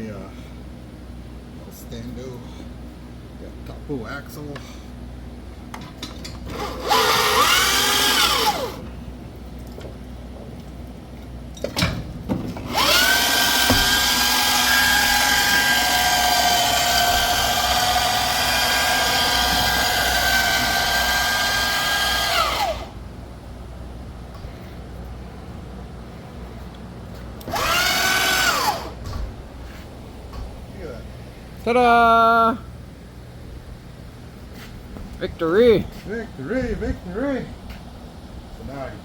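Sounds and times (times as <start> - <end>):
power drill whining: 6.5 - 8.9, 12.6 - 23.0, 27.4 - 29.1.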